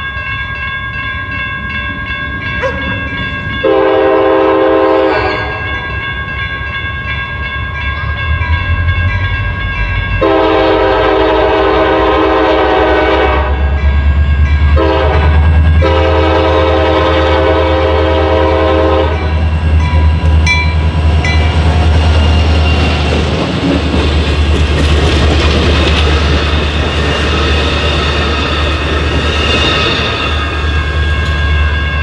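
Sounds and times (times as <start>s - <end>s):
wheels clickety-clack on rails: 0.0s - 4.6s, 19.1s - 32.0s
locomotive horn blasts: 3.6s - 5.7s, 10.2s - 13.8s, 14.8s - 19.4s.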